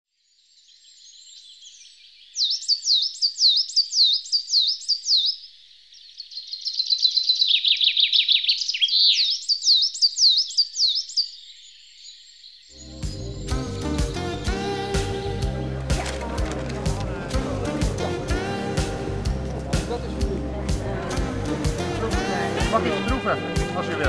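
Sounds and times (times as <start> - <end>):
songbird singing: 0.1 - 20.6.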